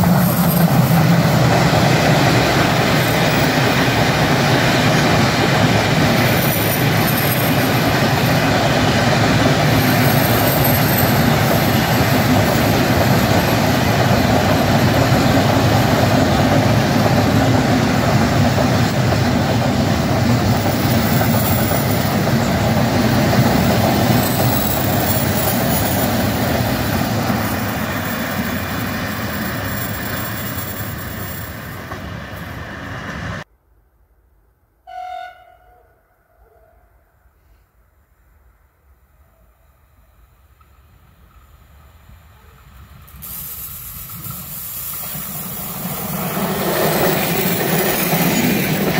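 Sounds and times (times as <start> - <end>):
train wheels on rails: 0.0 - 33.5, 40.2 - 48.9.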